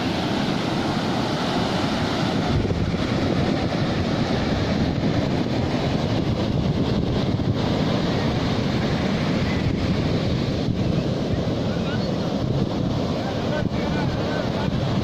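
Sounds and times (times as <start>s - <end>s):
sea waves washing: 0.0s - 15.0s
wind buffeting microphone: 0.0s - 15.0s.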